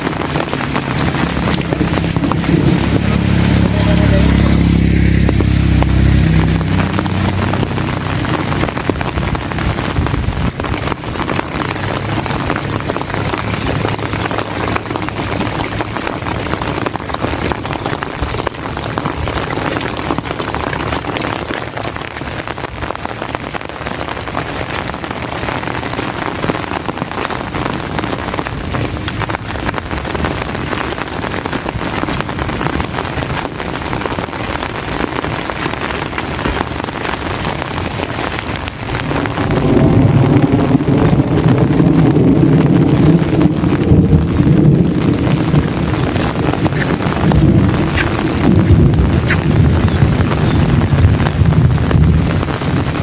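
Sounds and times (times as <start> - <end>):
deep rumble: 0.0 - 53.0
heavy rain falling: 0.0 - 53.0.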